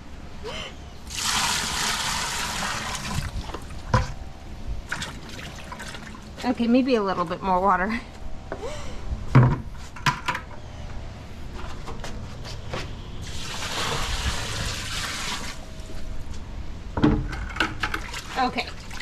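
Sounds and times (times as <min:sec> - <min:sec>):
water pouring into tub: 0:01.1 - 0:03.6, 0:13.2 - 0:15.6.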